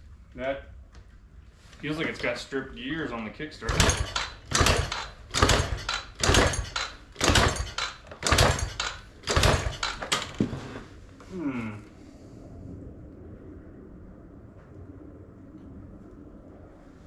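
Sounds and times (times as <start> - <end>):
dirt bike kickstarter kicked: 3.7 - 10.4.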